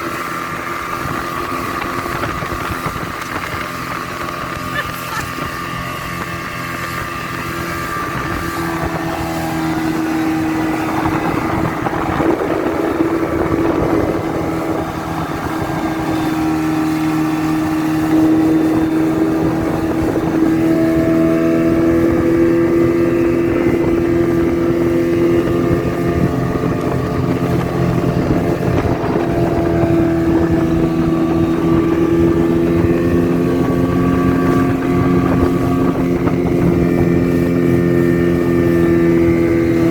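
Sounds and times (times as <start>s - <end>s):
motorboat engine running: 0.0s - 39.9s.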